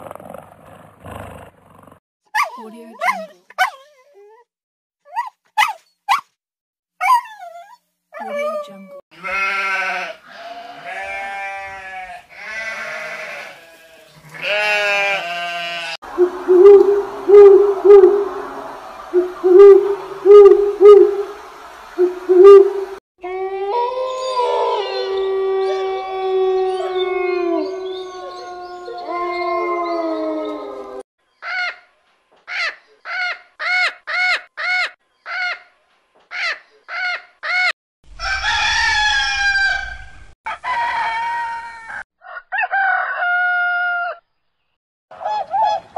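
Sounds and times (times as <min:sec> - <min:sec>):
sheep bleating: 0:09.1 - 0:16.0
short evenly spaced calls: 0:16.1 - 0:23.0
animal pulsing calls: 0:16.2 - 0:21.4
wolves howling: 0:23.2 - 0:31.0
rooster crowing: 0:38.1 - 0:44.2.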